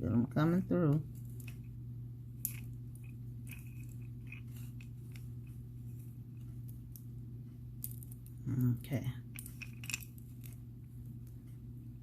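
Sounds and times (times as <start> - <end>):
steady low hum: 0.0 - 12.0
beads clicking and rustling: 1.0 - 7.1, 7.8 - 11.4.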